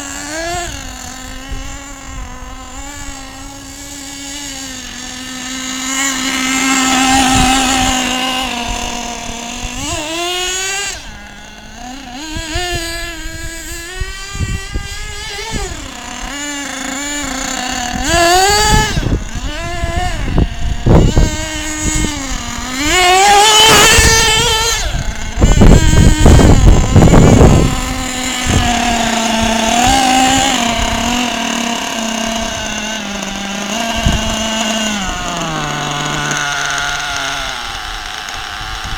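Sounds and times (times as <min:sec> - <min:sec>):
small model engine revving: 0:00.0 - 0:38.9
engine knocks and rattles: 0:14.8 - 0:38.9.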